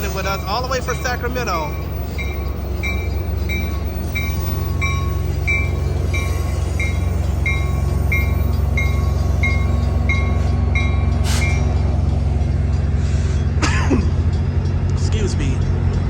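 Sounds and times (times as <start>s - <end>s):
bell dinging: 0.0s - 12.8s
diesel locomotive humming: 0.0s - 16.0s.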